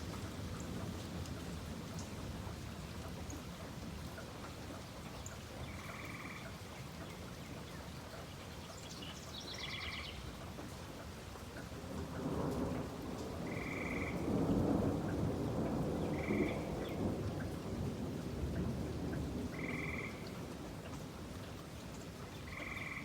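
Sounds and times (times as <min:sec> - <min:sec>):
steady rain falling: 0:00.0 - 0:23.0
thunder rumbling: 0:12.3 - 0:20.6.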